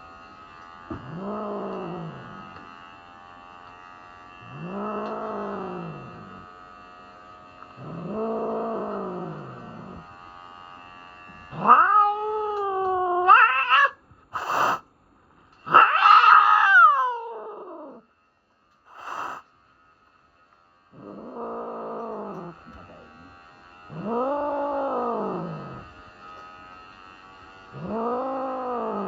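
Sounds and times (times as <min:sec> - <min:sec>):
cat yowling: 0:11.5 - 0:14.0, 0:15.7 - 0:18.0
cat breathy bursts: 0:14.3 - 0:14.9, 0:18.9 - 0:19.4.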